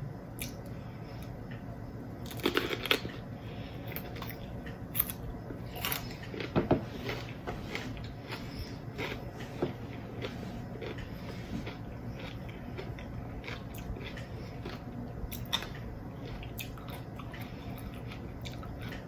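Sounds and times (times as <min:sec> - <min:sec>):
crunchy chewing: 0:02.2 - 0:19.0.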